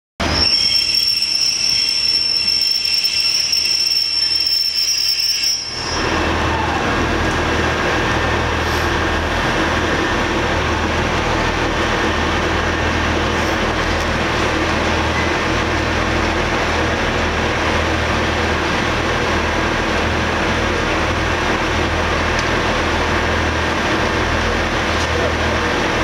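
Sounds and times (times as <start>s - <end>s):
train wheels squealing on rails: 0.2s - 11.0s
train rumble with low hum: 0.2s - 26.0s.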